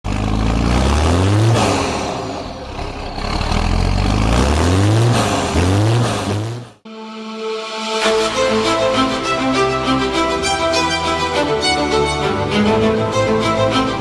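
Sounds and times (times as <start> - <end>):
tractor engine revving: 0.0 - 6.9.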